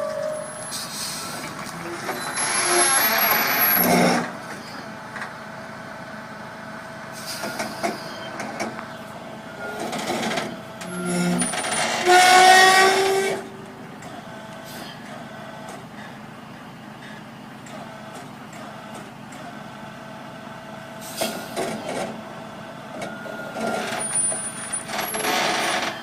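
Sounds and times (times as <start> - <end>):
vehicle noise: 0.0 - 26.0
loud vehicle horn blast: 12.0 - 13.5.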